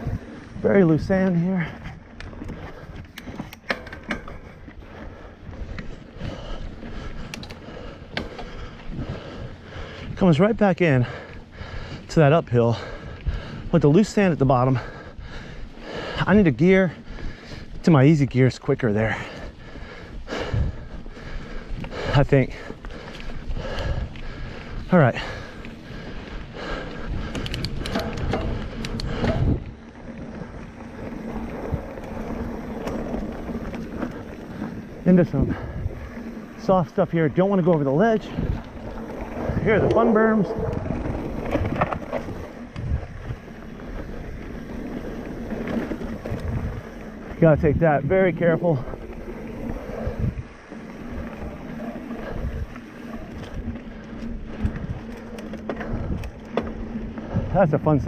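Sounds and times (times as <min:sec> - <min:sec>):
bike rolling over dirt trail: 0:00.0 - 0:58.0
wind buffeting microphone: 0:00.0 - 0:58.0
bike knocks and rattles: 0:02.3 - 0:04.8, 0:27.2 - 0:29.7.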